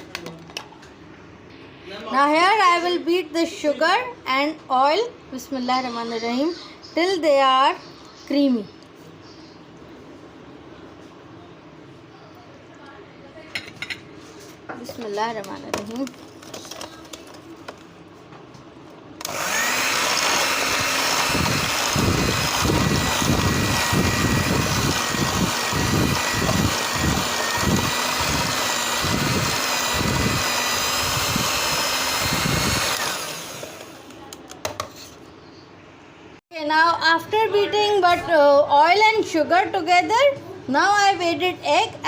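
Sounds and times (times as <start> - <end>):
electric mixer motor whine: 19.2 - 34.1.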